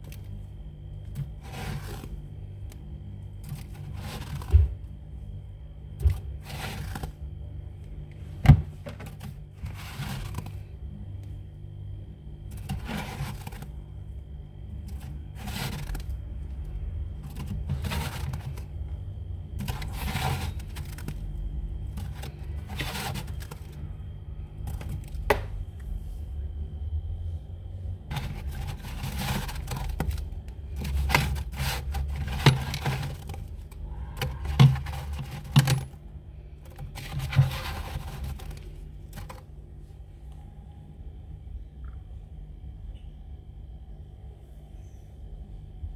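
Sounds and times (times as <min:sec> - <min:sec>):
steady low hum: 0:00.0 - 0:45.9
frost scraping inside freezer: 0:01.0 - 0:05.2, 0:06.0 - 0:07.3, 0:08.4 - 0:10.8, 0:12.5 - 0:14.0, 0:14.7 - 0:23.8, 0:28.1 - 0:39.5.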